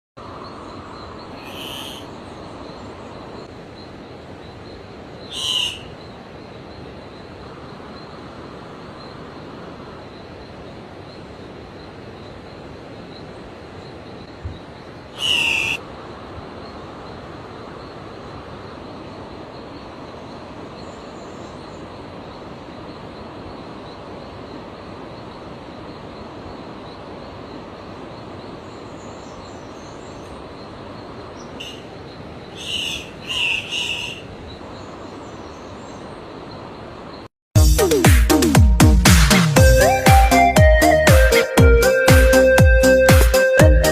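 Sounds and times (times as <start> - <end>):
steady background hiss: 0.2 - 37.3
bird short high calls: 1.3 - 2.1, 5.3 - 6.0, 15.1 - 15.8, 31.4 - 34.4.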